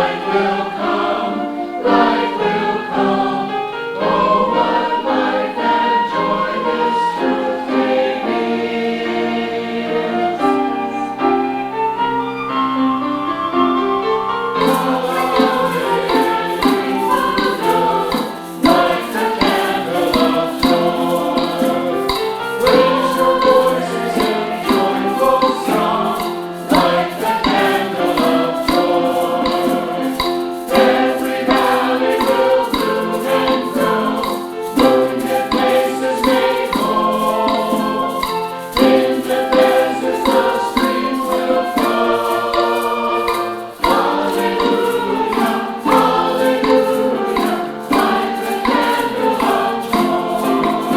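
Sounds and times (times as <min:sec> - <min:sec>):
church choir singing: 0:00.0 - 0:50.9
instrumental accompaniment: 0:00.0 - 0:50.9.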